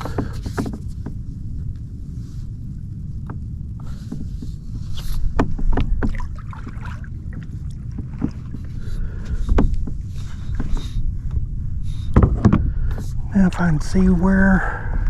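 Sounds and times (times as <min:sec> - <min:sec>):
wind rumble on microphone: 0:00.0 - 0:15.0
paddle splashing in water: 0:05.2 - 0:11.0
paddle knocking kayak hull: 0:05.3 - 0:10.9, 0:12.1 - 0:13.6.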